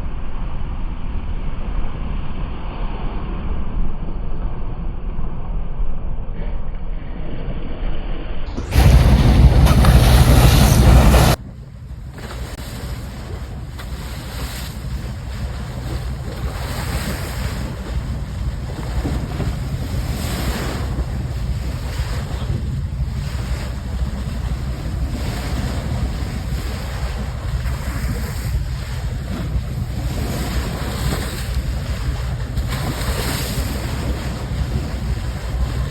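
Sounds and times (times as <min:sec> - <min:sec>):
steady low rumble: 0:08.5 - 0:35.9
sea water rushing along hull: 0:08.6 - 0:35.9
wind buffeting microphone: 0:08.6 - 0:35.9.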